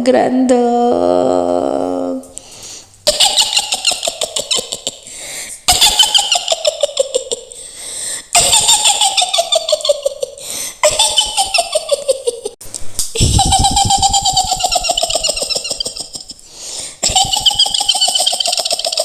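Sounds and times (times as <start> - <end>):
high cackling witch laugh: 3.0 - 7.7, 8.3 - 12.6, 13.2 - 19.0.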